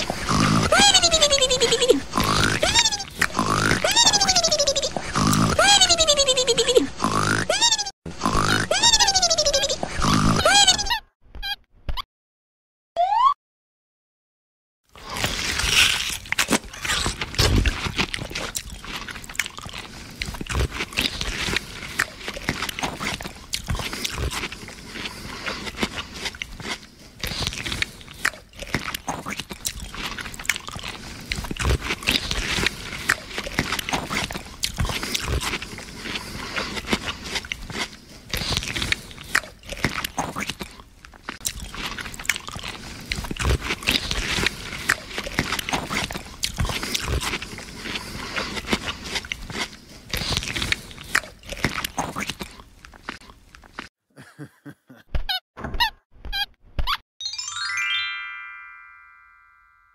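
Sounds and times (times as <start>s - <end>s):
crunchy bites and chewing: 0.0s - 1.2s, 2.0s - 5.6s, 14.9s - 53.9s.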